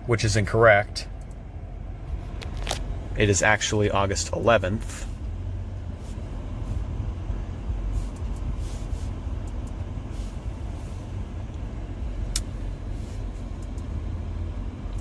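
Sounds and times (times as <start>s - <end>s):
car engine idling rumble: 0.0s - 15.0s.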